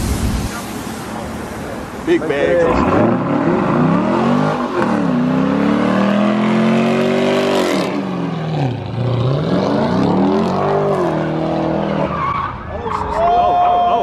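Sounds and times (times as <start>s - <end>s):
car engine revving hard: 2.6s - 12.1s.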